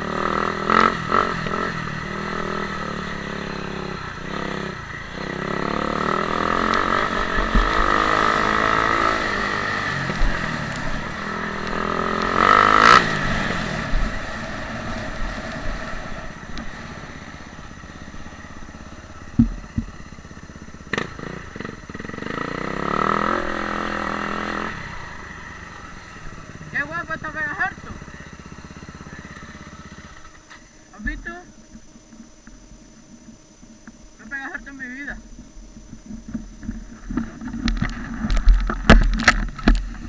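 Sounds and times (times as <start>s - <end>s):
motorbike passing close: 0.0s - 31.4s
motocross bike engines revving: 0.0s - 40.0s
sharp knocks: 19.3s - 20.0s.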